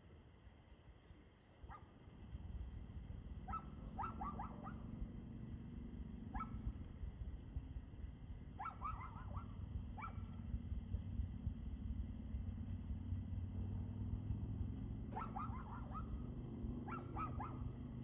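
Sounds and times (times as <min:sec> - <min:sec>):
steady low rumble: 0:00.2 - 0:18.0
dog barking: 0:01.7 - 0:02.0, 0:03.4 - 0:05.1, 0:06.2 - 0:06.8, 0:08.6 - 0:10.5, 0:15.0 - 0:17.9.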